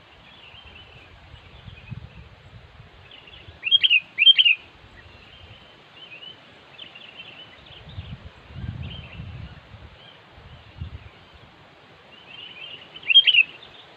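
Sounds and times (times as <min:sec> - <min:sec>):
faint bird chirping: 0:00.0 - 0:13.9
bird sharp calls: 0:03.2 - 0:05.5, 0:12.2 - 0:13.9.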